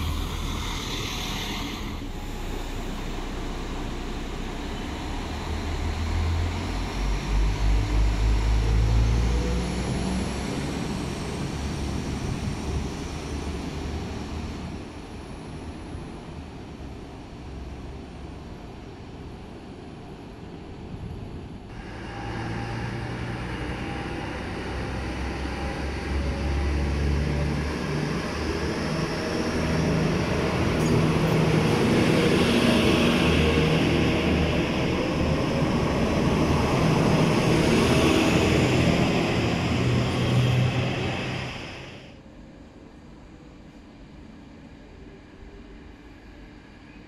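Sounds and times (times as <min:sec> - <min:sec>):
diesel train engine: 0:00.0 - 0:42.3.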